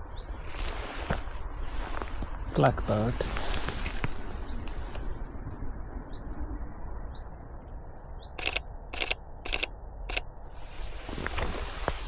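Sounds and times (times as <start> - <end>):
camera shutter clicks: 8.4 - 10.2.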